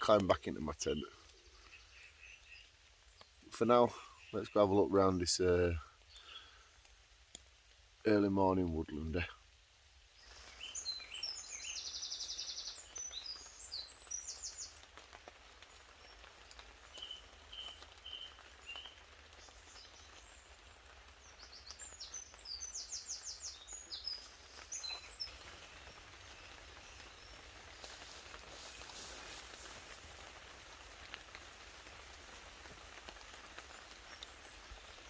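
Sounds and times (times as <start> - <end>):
faint drizzle: 0.0 - 35.0
songbird chirping and trilling: 0.4 - 6.6, 10.2 - 14.9, 16.9 - 30.4.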